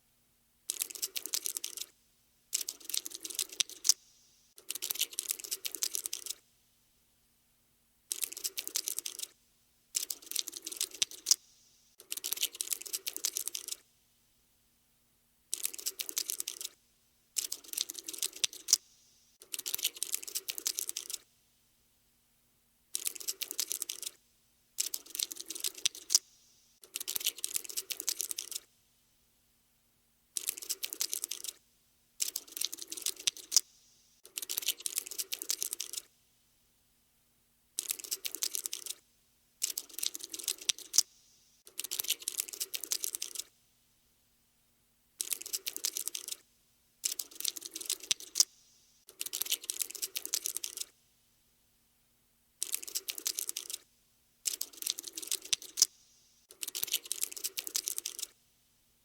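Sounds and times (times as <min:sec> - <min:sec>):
cockroach scuttling clicks: 0:00.7 - 0:01.9, 0:02.5 - 0:04.0, 0:04.6 - 0:06.4, 0:08.1 - 0:09.3, 0:10.0 - 0:13.8, 0:15.5 - 0:16.8, 0:17.4 - 0:18.8, 0:19.4 - 0:21.2, 0:23.0 - 0:24.2, 0:24.8 - 0:28.6, 0:30.4 - 0:31.6, 0:32.2 - 0:36.1, 0:37.8 - 0:39.0, 0:39.6 - 0:43.5, 0:45.2 - 0:46.4, 0:47.0 - 0:50.9, 0:52.6 - 0:53.8, 0:54.4 - 0:58.4.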